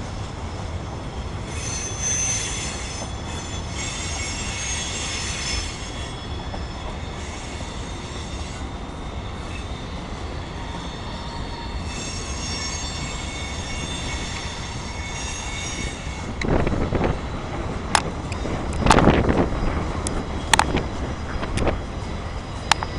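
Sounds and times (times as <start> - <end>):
freight train rumble: 0.0 - 22.9
high-pitched wheel squeal: 1.4 - 16.4.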